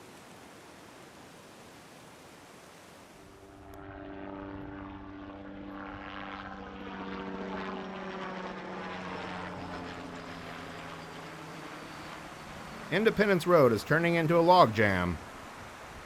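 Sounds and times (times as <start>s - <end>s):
propeller aircraft running: 3.2s - 16.0s.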